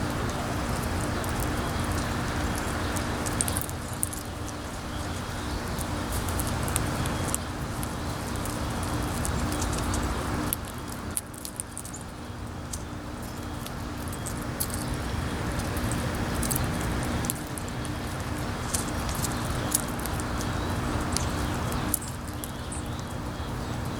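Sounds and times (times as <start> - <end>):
small sharp clicks: 0.0 - 4.6.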